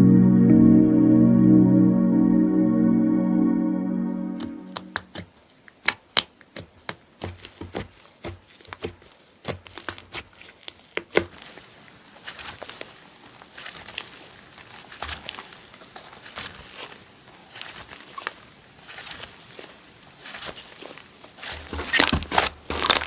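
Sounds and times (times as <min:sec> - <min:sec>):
slime popping and crackling: 0:21.8 - 0:23.0.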